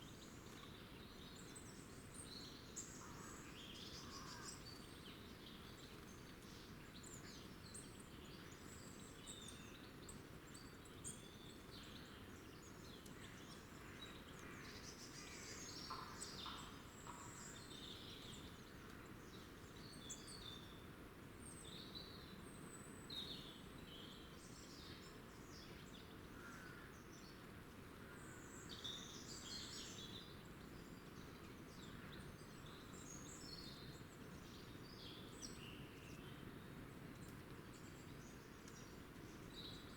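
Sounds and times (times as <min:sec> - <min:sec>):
low background hiss: 0:00.0 - 0:39.9.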